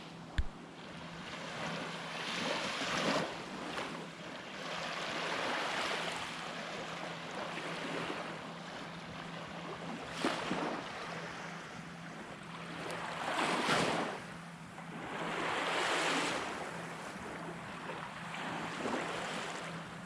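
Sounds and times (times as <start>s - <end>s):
surf washing up beach: 1.3s - 8.9s.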